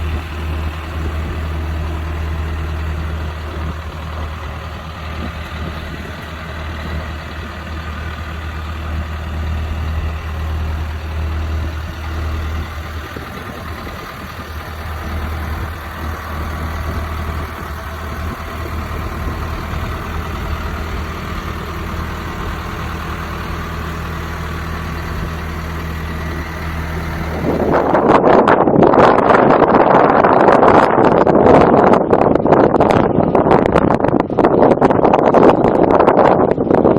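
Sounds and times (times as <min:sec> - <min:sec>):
tractor diesel engine idling: 0:00.0 - 0:28.4.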